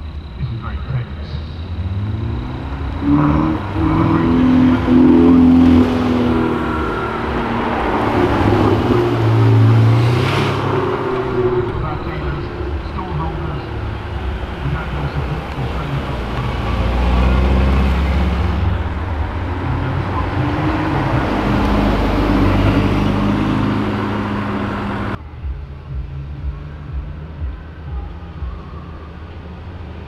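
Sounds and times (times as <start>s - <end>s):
car engines accelerating: 0.0s - 30.0s.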